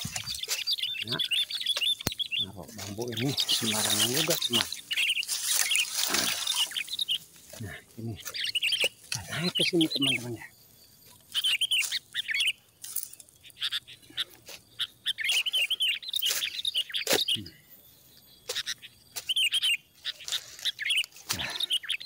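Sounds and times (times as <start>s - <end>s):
footsteps on dry bamboo and leaves: 0.0s - 10.4s, 11.0s - 13.4s, 14.2s - 17.3s, 18.4s - 21.6s
songbirds chirping: 0.0s - 22.0s.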